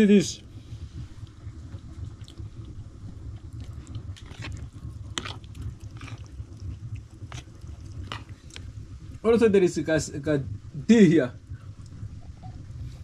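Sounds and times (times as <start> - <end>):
steady low rumble: 0.0 - 13.0
person chewing: 1.3 - 8.7.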